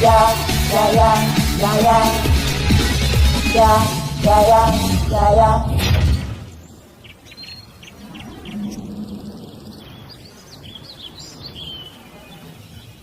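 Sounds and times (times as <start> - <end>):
bird chirping: 6.5 - 13.0.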